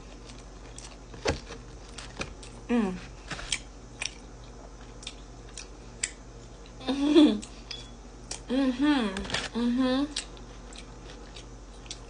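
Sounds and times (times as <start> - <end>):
person humming in enjoyment: 2.7 - 3.1, 8.5 - 10.2
person chewing with lip smacks: 3.5 - 6.8, 10.1 - 12.0.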